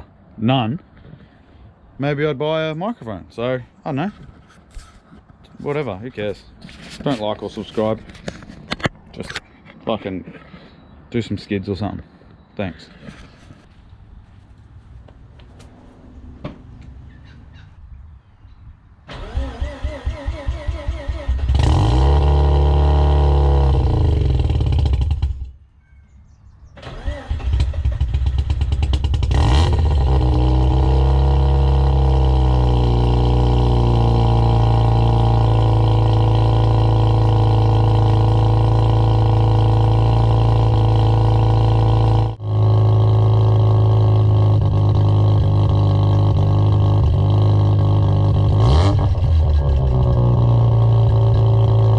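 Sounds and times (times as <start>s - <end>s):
starter motor cranking: 26.8s - 30.7s.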